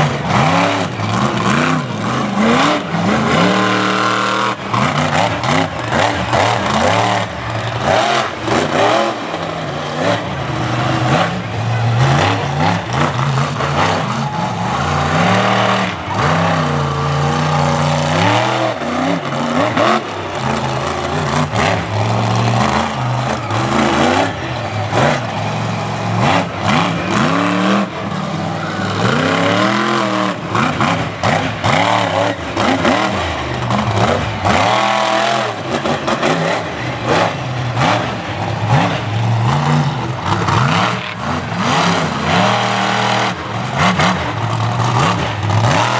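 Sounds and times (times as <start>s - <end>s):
truck engine revving hard: 0.0s - 45.9s.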